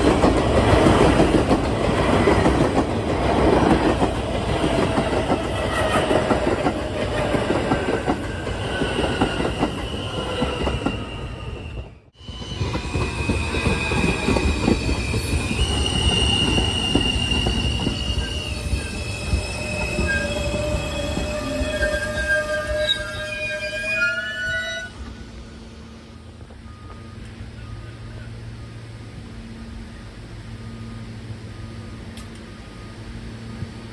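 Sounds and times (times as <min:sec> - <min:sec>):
train rumbling on rails: 0:00.0 - 0:33.9
high-pitched wheel squeal: 0:08.3 - 0:25.3.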